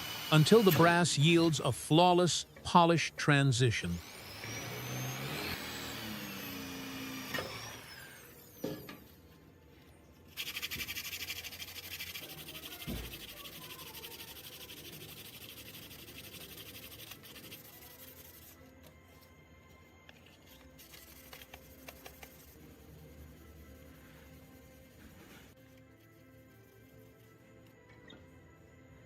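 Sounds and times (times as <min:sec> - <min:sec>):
sanding brass: 0:10.4 - 0:18.7, 0:20.8 - 0:27.3.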